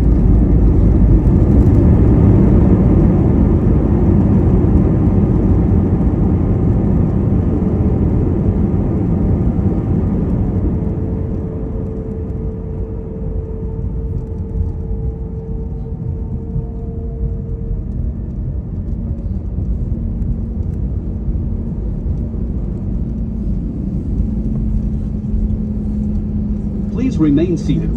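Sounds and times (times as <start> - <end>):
rumble of wheels and engines: 0.0 - 27.9
jet engines spooling down: 22.0 - 27.9.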